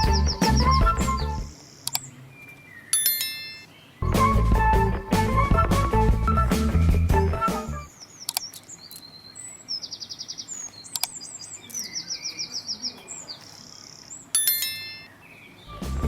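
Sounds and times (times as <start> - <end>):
small birds chirping and trilling: 0.0 - 4.2, 7.8 - 16.0
sharp clicks: 1.8 - 2.1, 8.2 - 9.1, 10.8 - 11.8.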